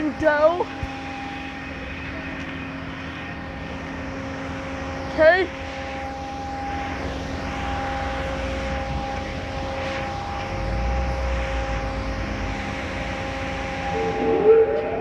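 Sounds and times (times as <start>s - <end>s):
car wash fan drone: 0.0s - 15.0s
constant whine over hiss: 0.0s - 15.0s.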